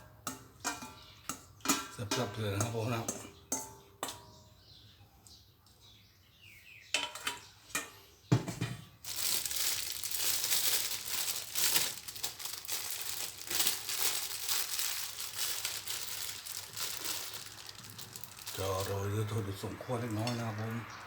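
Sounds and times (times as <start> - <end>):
plastic bag crinkling: 9.0 - 19.5.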